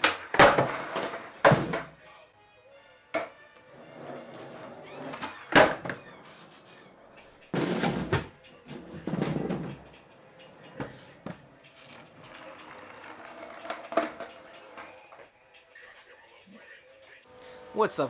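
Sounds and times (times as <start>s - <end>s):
skateboard impacts and clatter: 0.0s - 2.0s, 4.0s - 6.8s, 7.5s - 10.0s, 10.7s - 15.3s
skateboard rolling: 0.0s - 2.0s, 3.1s - 15.3s.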